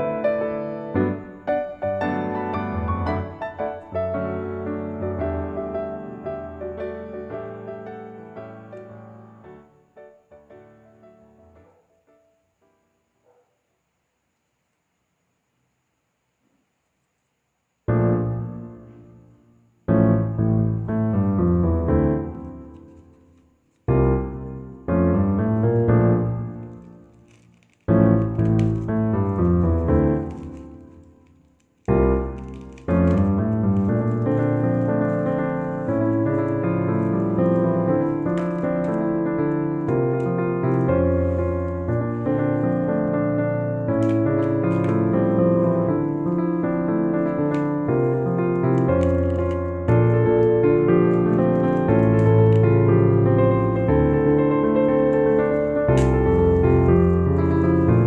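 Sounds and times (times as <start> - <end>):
piano chords and notes: 0.0 - 13.2, 17.9 - 58.0.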